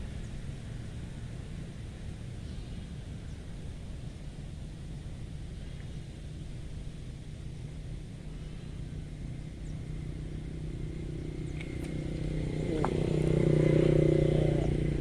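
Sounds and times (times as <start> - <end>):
vehicle engine passing by: 9.4 - 15.0.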